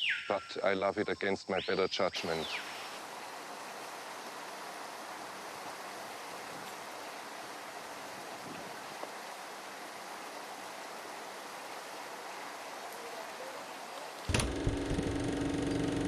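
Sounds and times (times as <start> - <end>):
flowing water rushing: 2.2 - 16.0.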